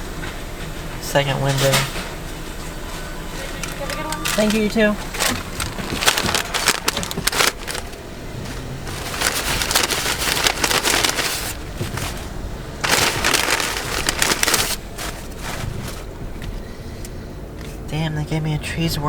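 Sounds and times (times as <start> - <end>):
paper bag rustling and crinkling: 3.4 - 16.6.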